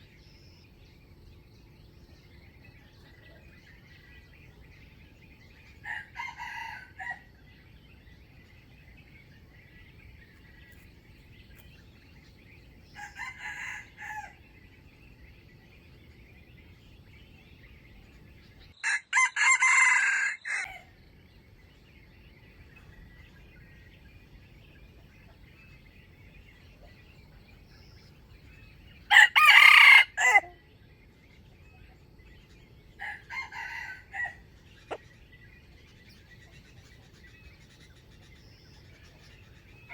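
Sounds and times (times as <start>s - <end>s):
roosters crowing: 5.6s - 7.4s, 12.9s - 14.5s, 18.8s - 21.0s, 29.0s - 30.6s, 32.9s - 35.0s.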